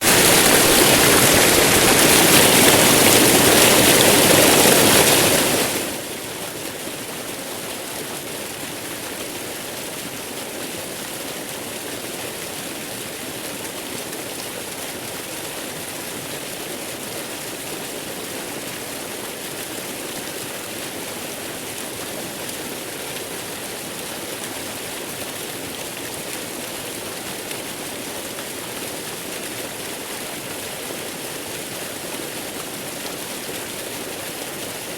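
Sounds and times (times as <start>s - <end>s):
waterfall rushing: 0.0s - 6.1s.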